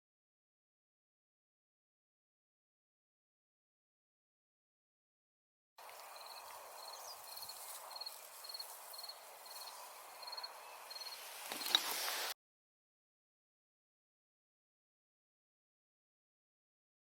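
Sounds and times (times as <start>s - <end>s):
insect chirping: 5.8s - 11.9s
brief rustle or clatter: 11.4s - 12.4s.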